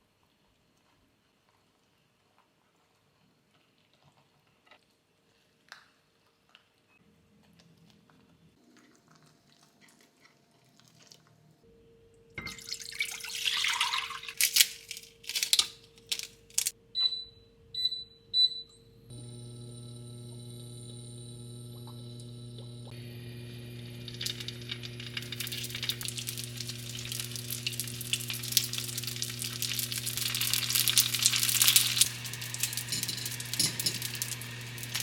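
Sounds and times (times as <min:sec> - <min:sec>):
tap water running: 0:12.4 - 0:14.4, 0:19.2 - 0:35.0
faint clicks and handling: 0:14.4 - 0:16.7.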